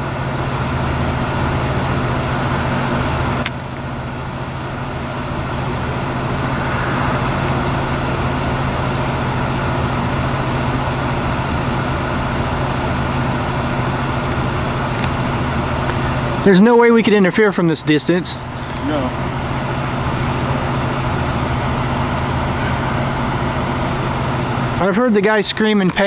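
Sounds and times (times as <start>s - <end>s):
vehicle engine idling: 0.0s - 16.4s.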